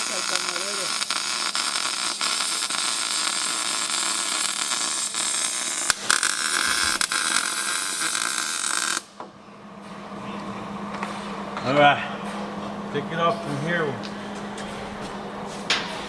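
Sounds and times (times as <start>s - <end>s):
welder crackling hiss: 0.0s - 9.1s.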